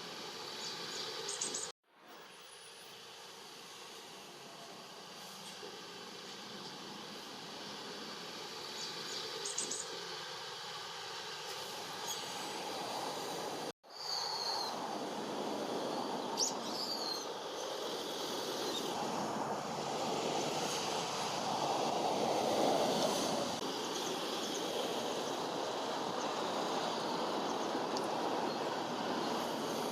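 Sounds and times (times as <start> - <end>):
rushing background noise: 14.3 - 29.9
shrill bird calls: 16.4 - 17.7.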